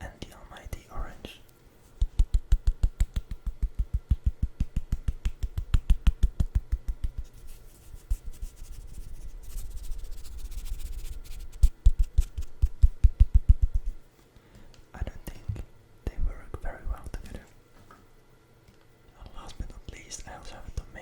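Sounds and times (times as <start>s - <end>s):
rubbing and scratching: 1.8s - 14.1s
fast tapping on food: 2.0s - 7.2s.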